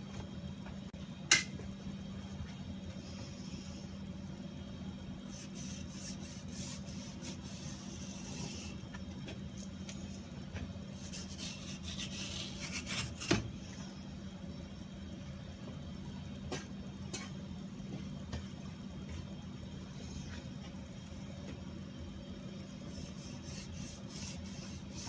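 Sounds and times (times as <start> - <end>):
knife scraping through fish: 11.0 - 13.4.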